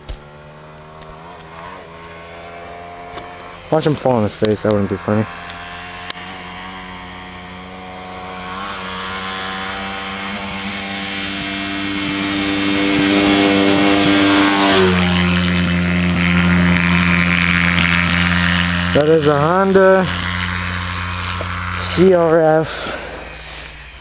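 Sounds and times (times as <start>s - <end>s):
dirt bike passing by: 0.0s - 24.0s.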